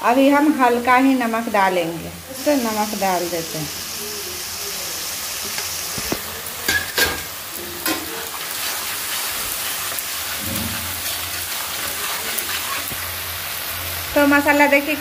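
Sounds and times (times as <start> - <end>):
food sizzling in oil: 0.0 - 15.0
metal spatula scraping pan: 7.9 - 13.0.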